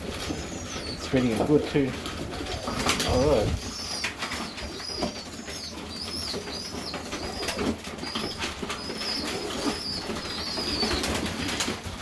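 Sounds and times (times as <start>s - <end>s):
young pigeon squeaking: 0.0s - 11.8s
low wind rumble on microphone: 3.0s - 3.7s.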